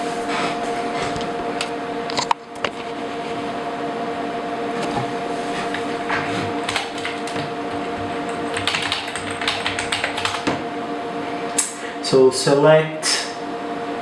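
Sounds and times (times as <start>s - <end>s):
computer cooling fans humming: 0.0s - 14.0s
keyboard key presses: 8.5s - 10.5s.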